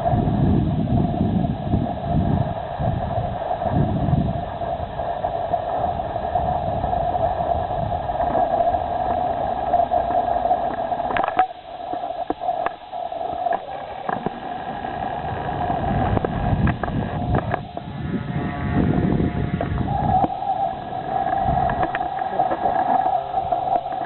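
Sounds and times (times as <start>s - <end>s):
model boat motor whining: 13.3s - 24.0s.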